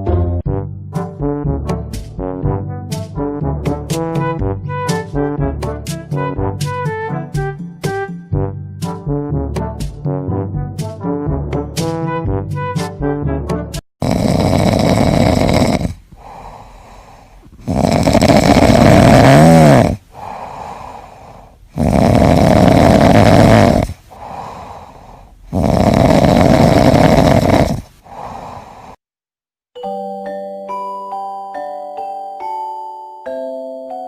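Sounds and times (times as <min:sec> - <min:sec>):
pet snoring: 0:14.0 - 0:29.0.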